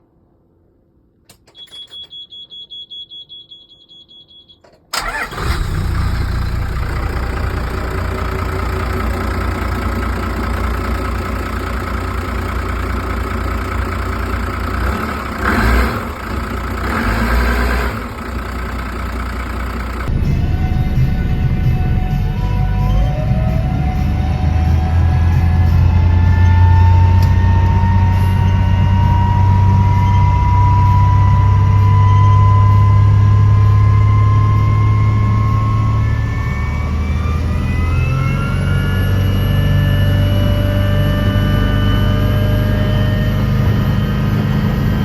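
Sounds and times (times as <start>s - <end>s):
diesel boat engine running: 5.0s - 45.0s.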